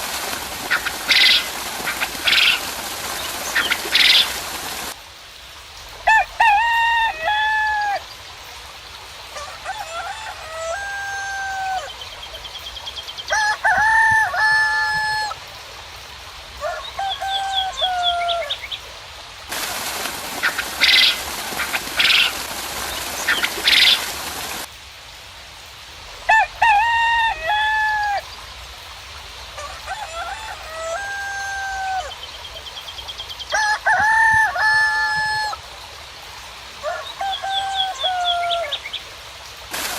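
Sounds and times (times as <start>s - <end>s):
loud sharp calls: 0.0s - 5.0s, 19.5s - 24.7s
hiss: 0.0s - 6.0s, 19.0s - 26.3s, 38.9s - 39.9s
roosters crowing: 6.1s - 8.0s, 9.3s - 12.0s, 13.3s - 15.4s, 16.6s - 18.6s, 26.3s - 28.3s, 29.6s - 32.2s, 33.5s - 35.7s, 36.8s - 38.8s.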